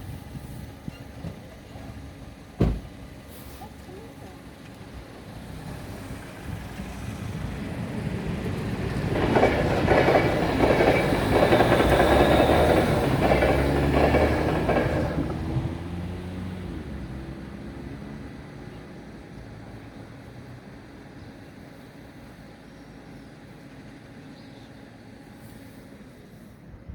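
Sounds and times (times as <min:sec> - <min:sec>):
wheels clacking over rail joints: 0:03.8 - 0:17.4
electric train passing: 0:04.4 - 0:26.8.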